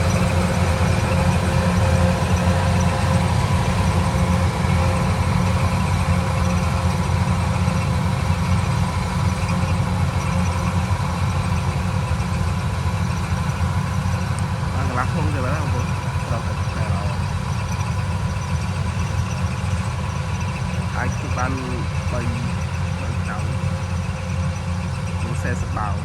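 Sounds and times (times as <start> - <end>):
engine droning: 0.0 - 26.0.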